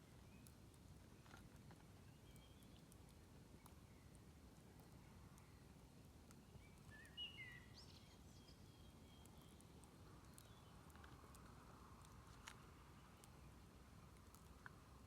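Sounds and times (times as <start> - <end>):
campfire crackles: 0.0 - 15.0
bird chirping: 6.5 - 9.6.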